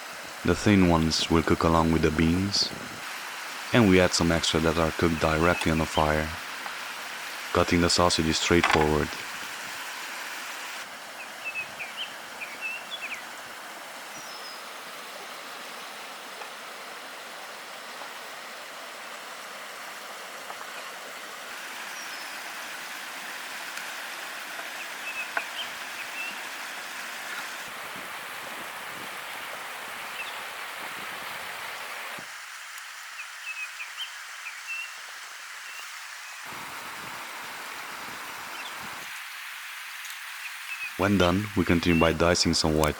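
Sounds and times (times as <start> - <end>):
outdoor background hiss: 0.0 - 42.9
small birds chirping: 3.6 - 6.4, 11.1 - 13.4, 14.1 - 14.7, 24.6 - 26.6, 30.1 - 30.5, 37.7 - 39.1, 39.8 - 42.9.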